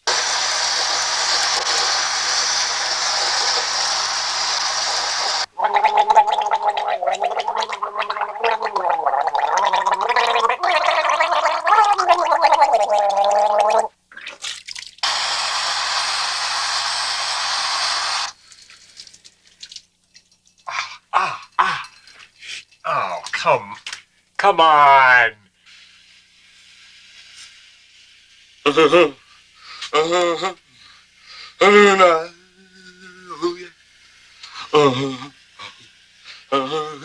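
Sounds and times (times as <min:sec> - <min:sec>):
water running: 0:00.1 - 0:15.6, 0:18.1 - 0:24.1
man gargling: 0:05.5 - 0:14.0, 0:20.7 - 0:22.0, 0:29.9 - 0:30.6, 0:34.7 - 0:35.8, 0:36.5 - 0:37.0.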